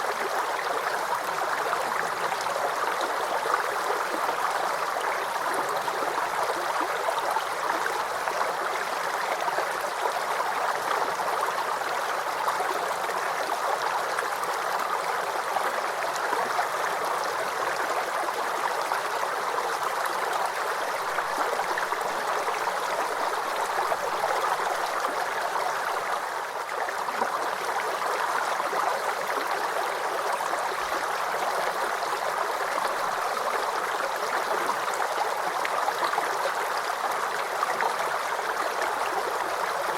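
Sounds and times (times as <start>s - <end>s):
creek babbling and trickling: 0.0s - 39.9s.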